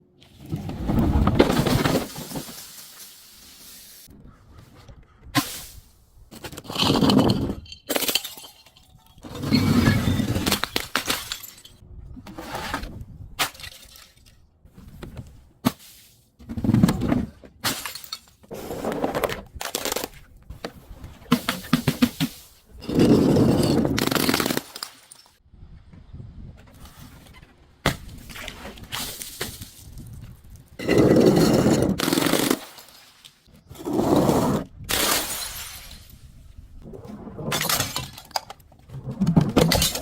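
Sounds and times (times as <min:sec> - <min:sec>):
glass bottles crushing and breaking: 0:01.5 - 0:03.8, 0:06.4 - 0:11.8, 0:13.4 - 0:14.3, 0:17.6 - 0:18.5, 0:21.3 - 0:25.4, 0:30.8 - 0:33.3, 0:34.9 - 0:36.3, 0:37.4 - 0:38.6, 0:39.2 - 0:40.0.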